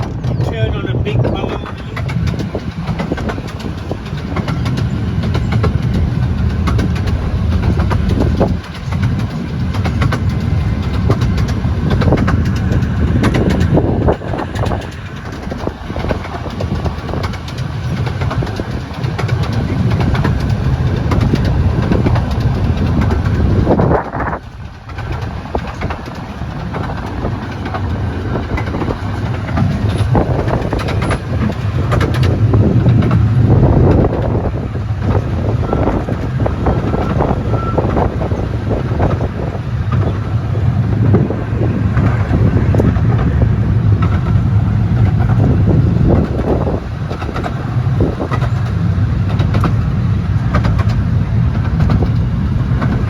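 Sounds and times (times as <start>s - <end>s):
miniature train rumbling: 0.0s - 53.0s
wheels clicking on rails: 0.0s - 53.0s.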